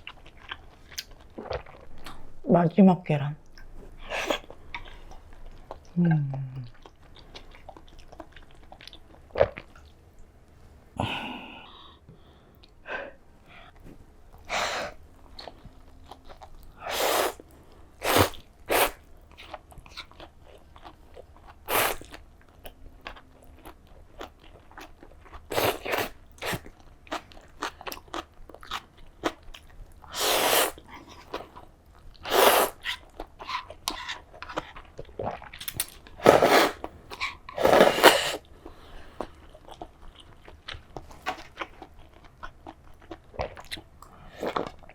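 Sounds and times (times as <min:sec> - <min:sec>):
crunchy chewing: 0:15.3 - 0:44.9.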